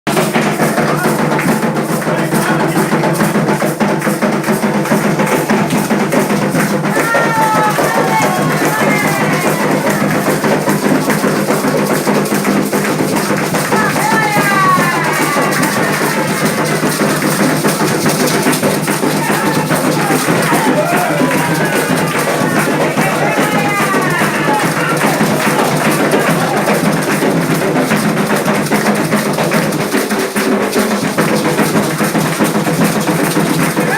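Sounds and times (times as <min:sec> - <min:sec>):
hand drums playing fast rhythm: 0:00.1 - 0:33.9
voices singing: 0:05.1 - 0:27.8.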